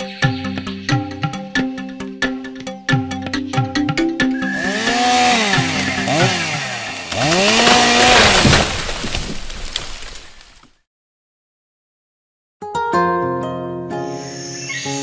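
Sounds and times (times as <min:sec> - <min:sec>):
music: 0:00.0 - 0:06.2, 0:12.6 - 0:15.0
chainsaw revving: 0:04.4 - 0:09.0.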